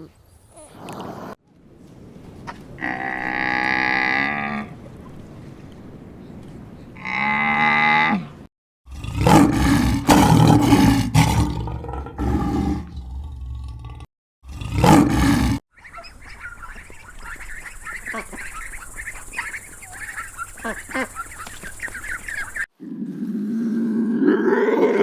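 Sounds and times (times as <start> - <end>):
cow mooing: 7.0 - 15.6
big cat roaring: 8.9 - 15.6, 22.8 - 25.0
ducks quacking: 15.8 - 22.6.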